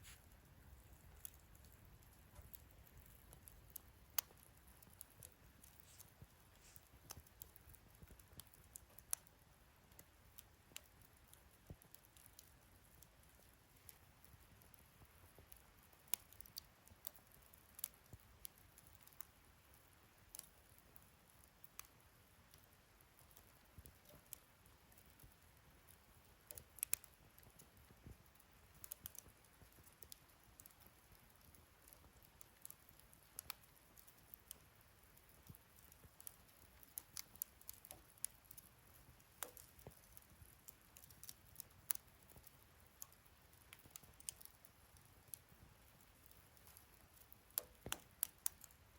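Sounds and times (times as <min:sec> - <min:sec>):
faint low hiss: 0:00.0 - 0:48.9
wood fire crackling: 0:00.0 - 0:48.9.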